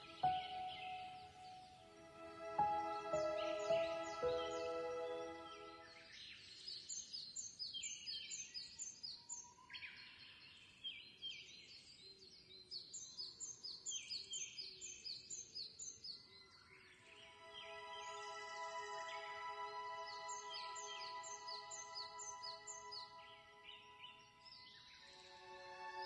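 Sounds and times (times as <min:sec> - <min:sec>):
soft background music: 0:00.0 - 0:06.6, 0:17.0 - 0:26.0
birds chirping: 0:00.0 - 0:09.0, 0:17.0 - 0:26.0.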